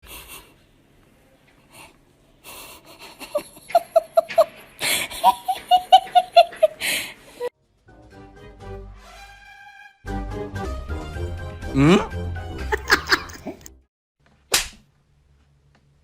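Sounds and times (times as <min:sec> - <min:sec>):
person laughing hard: 0:02.9 - 0:07.5, 0:11.7 - 0:13.6.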